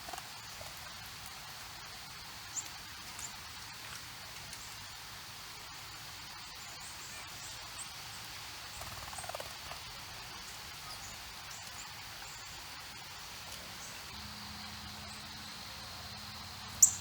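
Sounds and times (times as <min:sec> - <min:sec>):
descending bird call: 0:13.8 - 0:17.0
short high bird chirps: 0:16.8 - 0:17.0.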